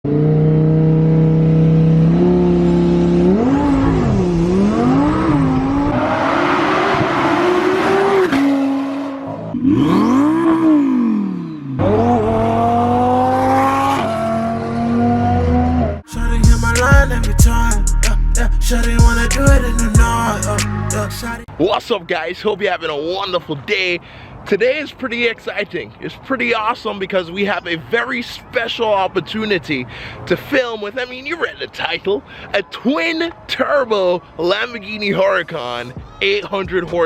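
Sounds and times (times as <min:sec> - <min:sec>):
car engine revving: 0:00.1 - 0:21.3.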